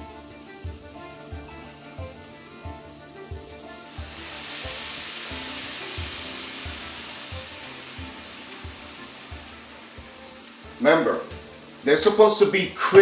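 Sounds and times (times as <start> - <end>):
batter sizzling in hot oil: 0.0 - 13.0.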